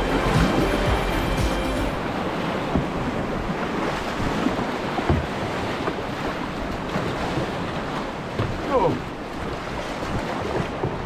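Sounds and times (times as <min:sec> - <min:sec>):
river rushing and splashing: 0:00.0 - 0:11.0
dull knocks on canoe: 0:02.7 - 0:03.1, 0:04.2 - 0:06.1, 0:08.3 - 0:09.1, 0:10.0 - 0:11.0.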